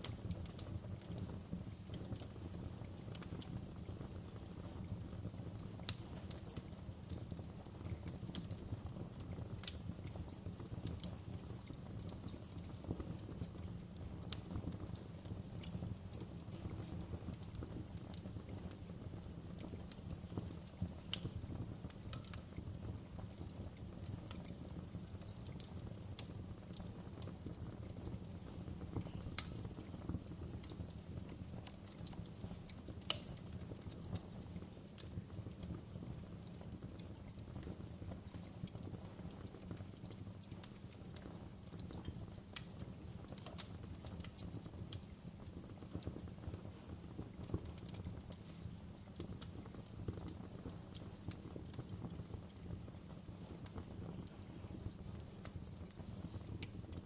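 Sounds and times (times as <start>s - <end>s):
sharp pops and snaps: 0.0s - 2.3s, 5.8s - 7.2s, 9.2s - 14.8s, 19.6s - 22.5s, 28.9s - 35.7s, 39.5s - 45.2s, 46.9s - 57.0s
wood fire crackling: 0.0s - 57.0s.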